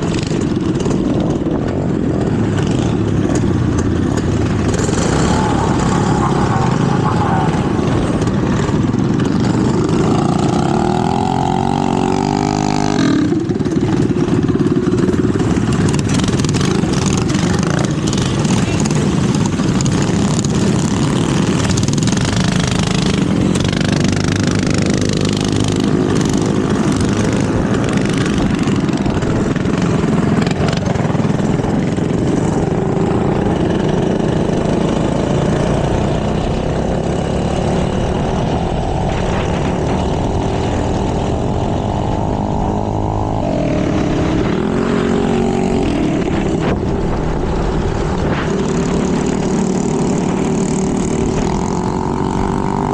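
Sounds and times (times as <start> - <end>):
minibike engines revving: 0.0 - 52.9.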